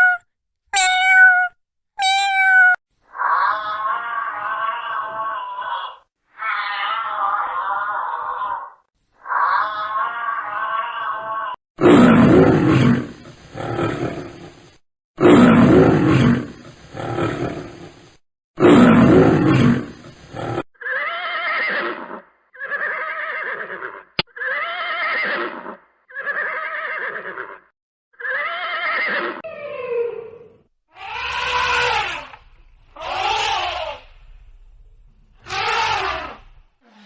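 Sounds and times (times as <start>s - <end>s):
wavering pitched animal calls: 0.0s - 0.2s, 0.8s - 2.8s.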